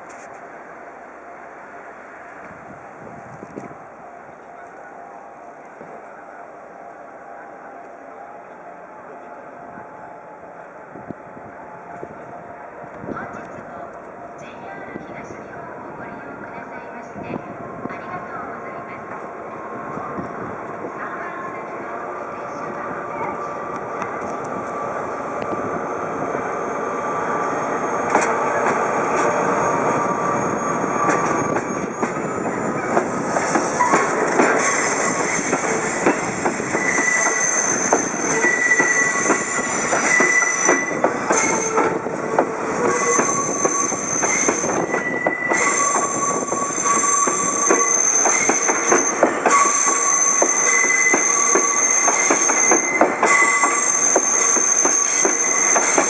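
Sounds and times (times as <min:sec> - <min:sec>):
wheel flanges squealing: 0:27.7 - 0:56.0
wheels clacking over rail joints: 0:32.9 - 0:56.0.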